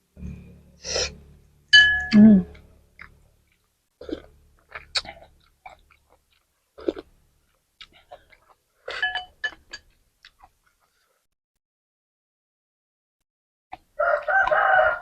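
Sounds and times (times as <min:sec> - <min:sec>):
person chewing and slurping noodles: 0:02.5 - 0:11.2.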